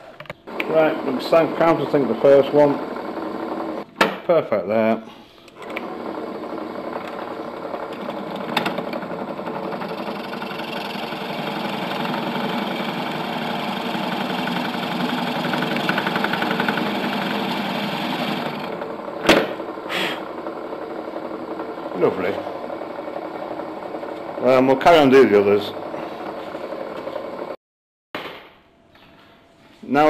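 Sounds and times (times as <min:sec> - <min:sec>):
electric drill motor running: 0:00.5 - 0:03.9, 0:05.6 - 0:27.6
drill bit cutting into wood: 0:07.9 - 0:18.8.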